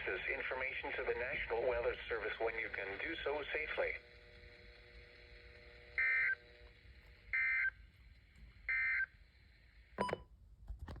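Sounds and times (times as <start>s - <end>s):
radio crackle: 0.0s - 6.5s.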